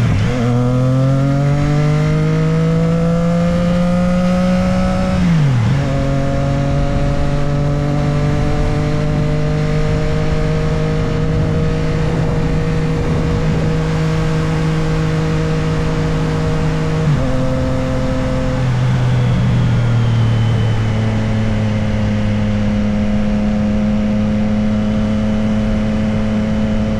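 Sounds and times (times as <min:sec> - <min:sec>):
motorcycle engine shifting gears: 0:00.0 - 0:26.9
wind rushing: 0:04.4 - 0:19.4.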